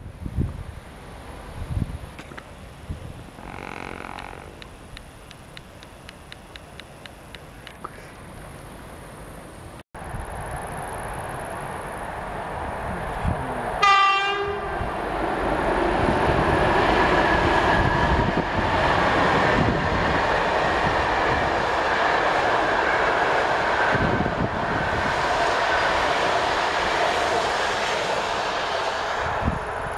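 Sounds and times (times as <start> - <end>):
train rumbling over steel bridge: 0.0 - 6.8, 10.0 - 29.9
train horn blast: 13.8 - 14.9.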